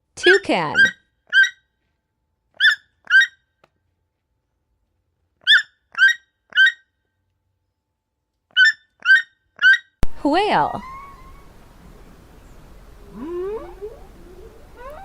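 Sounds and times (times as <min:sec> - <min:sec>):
toucan croaking calls: 0:08.6 - 0:15.0.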